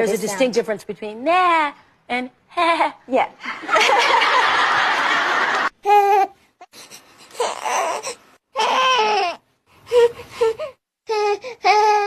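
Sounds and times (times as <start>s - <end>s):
infant crying in breathy bursts: 5.8s - 12.0s.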